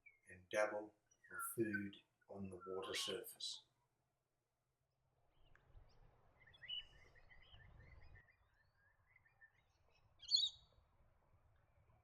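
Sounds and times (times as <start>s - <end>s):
birds chirping softly: 0.0s - 4.0s, 5.2s - 12.0s.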